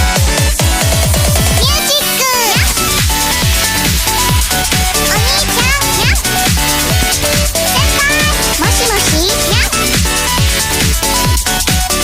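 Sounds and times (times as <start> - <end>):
electronic dance music: 1.0 - 10.5
kick drum: 2.6 - 11.9.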